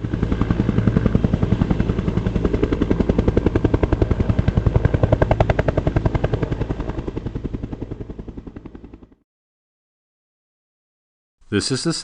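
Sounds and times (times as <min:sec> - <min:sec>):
helicopter rotor blades chopping: 0:00.0 - 0:09.2.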